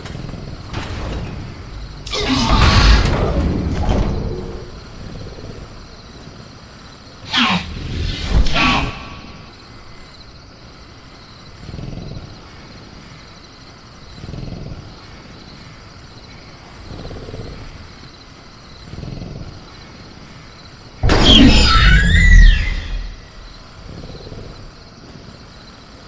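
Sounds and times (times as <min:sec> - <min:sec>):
cricket chorus: 0:00.0 - 0:26.0
creature call: 0:07.2 - 0:09.5, 0:21.0 - 0:23.5
downward gliding screech: 0:21.0 - 0:23.6.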